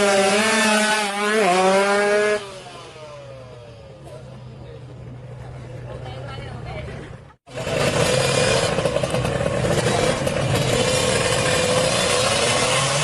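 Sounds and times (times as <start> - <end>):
motorcycle engine at high revs: 0.0 - 4.4, 7.5 - 13.0.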